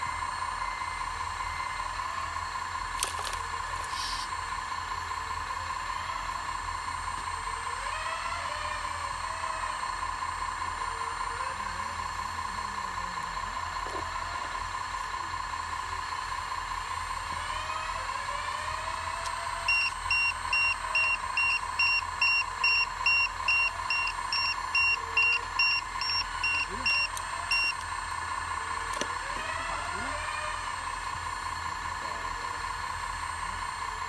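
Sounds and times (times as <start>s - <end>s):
hydraulic pump and motor whine: 0.0s - 34.0s
electronic warning beeps: 19.2s - 27.8s.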